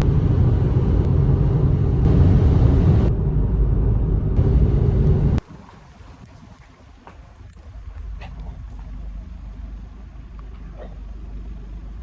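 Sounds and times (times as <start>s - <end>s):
loud low rumbling: 0.0s - 5.4s.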